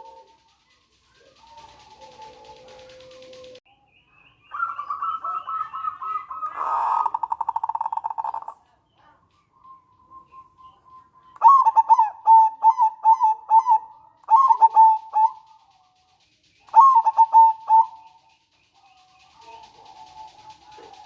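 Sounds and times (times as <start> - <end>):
dove cooing: 0.0 - 3.6, 4.5 - 8.6, 11.4 - 15.7, 16.7 - 18.2, 19.1 - 21.0.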